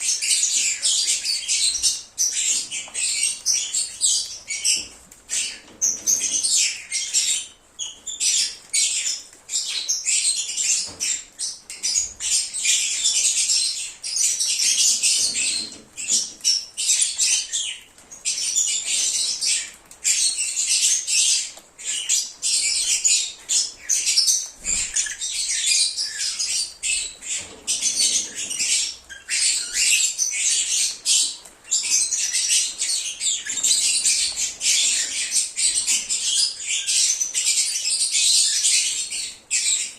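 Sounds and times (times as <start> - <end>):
lovebirds chattering: 0.0 - 39.9.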